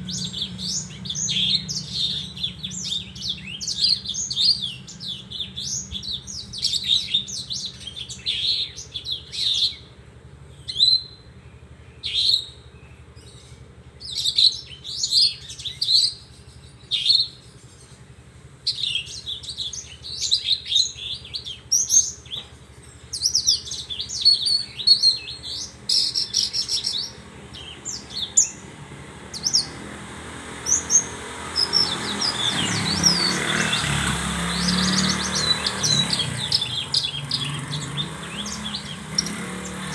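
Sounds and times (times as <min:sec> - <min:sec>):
bird chirping and trilling: 0:00.0 - 0:09.9, 0:10.6 - 0:18.0, 0:18.6 - 0:39.9.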